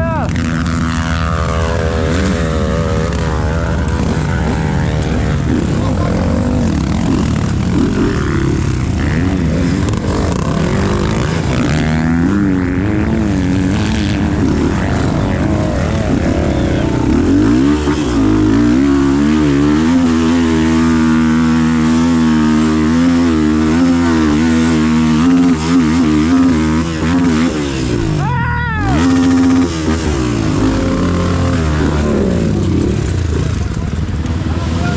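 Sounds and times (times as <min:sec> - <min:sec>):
steady rush of noise: 0:00.0 - 0:25.6
motorcycle engine running: 0:00.0 - 0:34.9.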